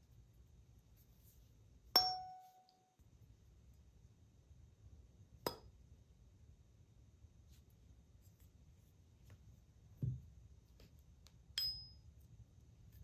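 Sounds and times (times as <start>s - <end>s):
tuning fork ringing: 2.0s - 3.0s, 11.6s - 12.0s
metallic clink: 11.6s - 12.1s.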